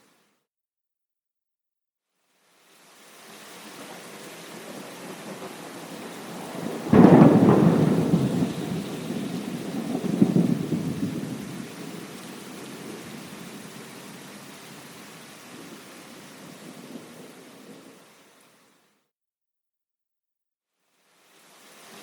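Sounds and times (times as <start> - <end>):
steady rain: 2.2 - 19.0, 20.8 - 22.0
thunder rumbling: 3.9 - 14.5.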